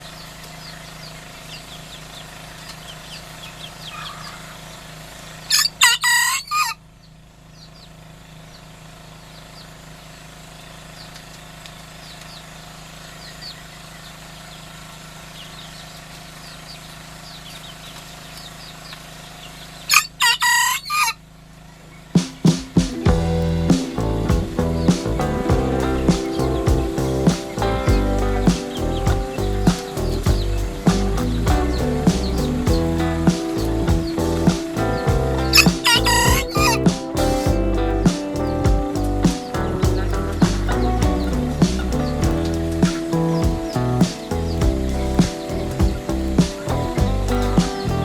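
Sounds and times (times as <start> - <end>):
faint high chirping: 22.2 - 48.0.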